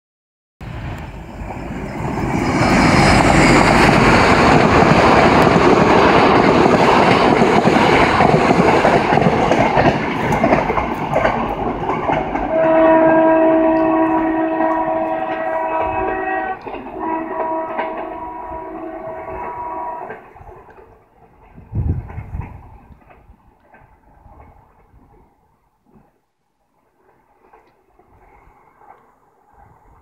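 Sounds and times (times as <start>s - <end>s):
train rumbling past: 0.6s - 26.2s, 26.8s - 30.0s
multi-tone train horn: 12.4s - 20.4s.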